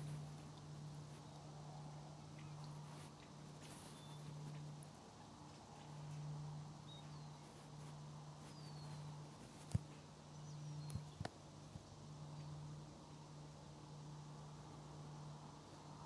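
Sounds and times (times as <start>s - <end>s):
faint bird chirps: 0.0s - 11.3s
steady low hum: 0.0s - 16.0s.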